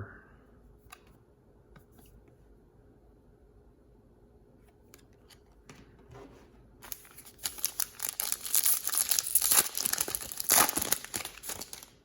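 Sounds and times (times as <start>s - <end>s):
foil wrapper tearing and crinkling: 6.9s - 12.0s.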